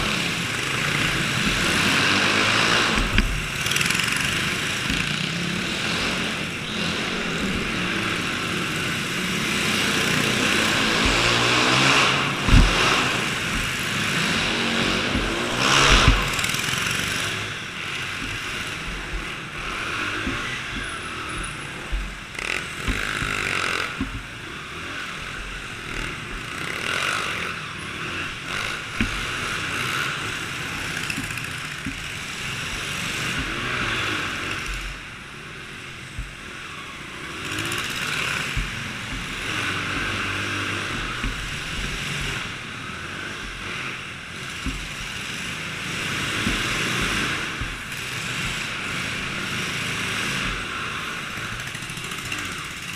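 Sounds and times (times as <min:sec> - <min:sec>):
small engines revving: 0:00.0 - 0:52.9
short low thumps: 0:07.1 - 0:24.4.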